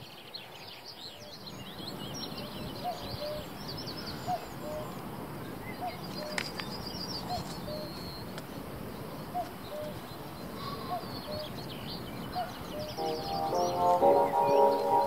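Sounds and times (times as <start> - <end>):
small birds chirping and twittering: 0.0 - 15.0
low two-note bird call: 13.0 - 15.0.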